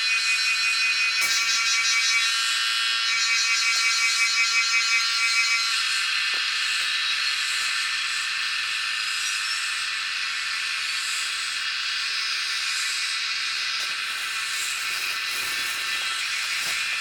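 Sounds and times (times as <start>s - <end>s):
steady high hiss: 5.2s - 17.0s.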